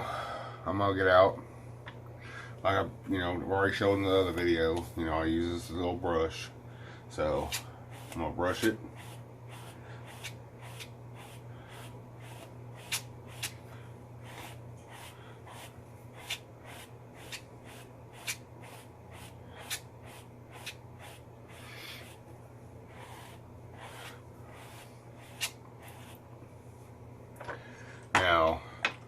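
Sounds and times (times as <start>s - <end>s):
steady low hum: 0.0s - 29.0s
brush swishing through beard: 7.3s - 13.6s, 14.2s - 26.3s.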